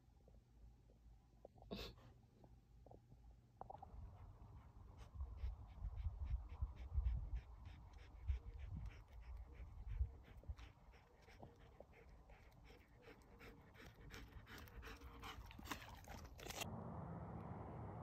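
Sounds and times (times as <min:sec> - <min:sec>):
dog panting: 0:04.0 - 0:16.4.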